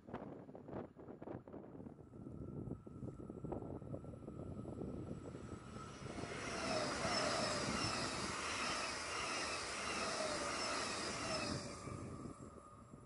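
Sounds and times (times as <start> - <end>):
electric train rushing past: 3.5 - 13.0
high falling whines: 4.7 - 13.0.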